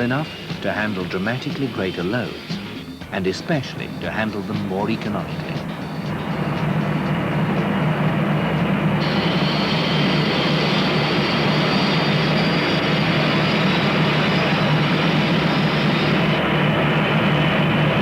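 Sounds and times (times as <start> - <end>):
high whine: 0.0 - 18.0
jet engines running: 0.0 - 18.0.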